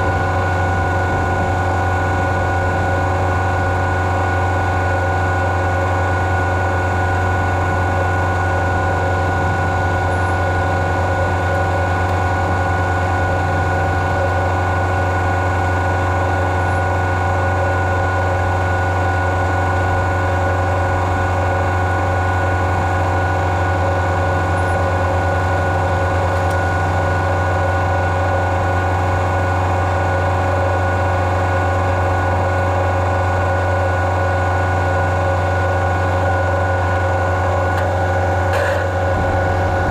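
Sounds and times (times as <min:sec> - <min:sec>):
farm machine engine droning: 0:00.0 - 0:39.9
machine whining tones: 0:06.2 - 0:19.0, 0:37.7 - 0:39.9.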